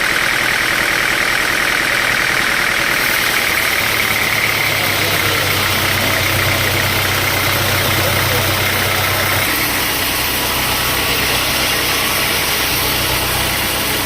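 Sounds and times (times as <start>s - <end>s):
sawmill machinery running: 0.0s - 14.0s
low hum: 3.0s - 14.0s.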